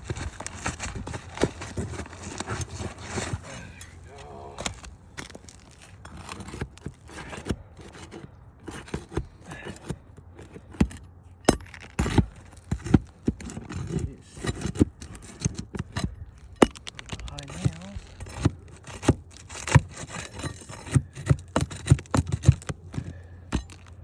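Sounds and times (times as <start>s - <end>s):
clicks and knocks on roof shingles: 0.0s - 3.6s, 4.6s - 24.0s.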